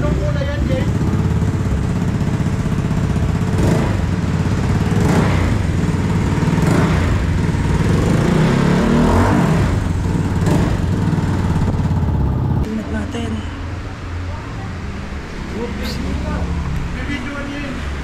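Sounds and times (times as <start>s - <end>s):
scooter engine running loud: 0.0s - 12.7s.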